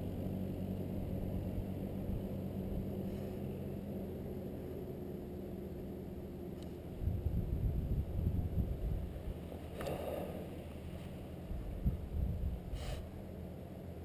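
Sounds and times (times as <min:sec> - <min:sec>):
dirt bike engine: 0:00.0 - 0:12.6
wind buffeting microphone: 0:06.9 - 0:09.5, 0:10.5 - 0:13.0.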